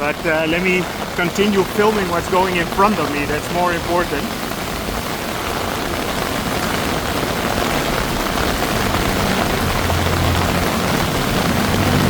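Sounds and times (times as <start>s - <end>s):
heavy rain pouring: 0.0s - 12.0s
vehicle engine hum: 8.5s - 12.0s.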